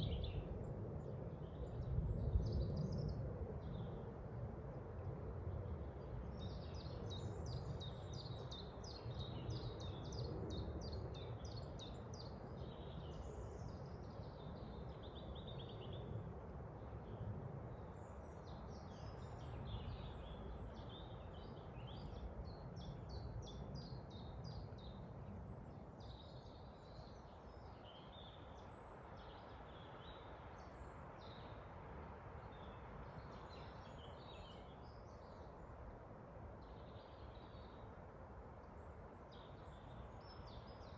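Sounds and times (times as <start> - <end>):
low rush of wind: 0.0 - 40.9
songbirds singing and chirping: 32.5 - 35.7.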